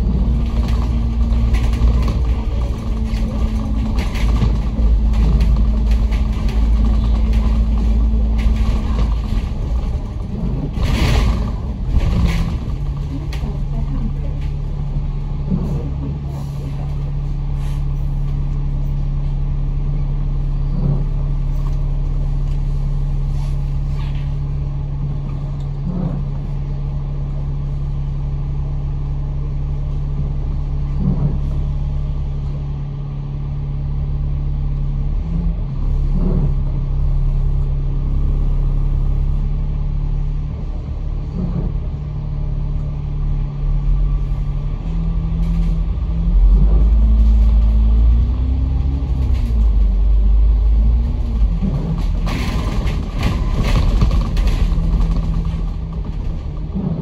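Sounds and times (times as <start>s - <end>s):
bus engine drone: 0.0s - 57.0s.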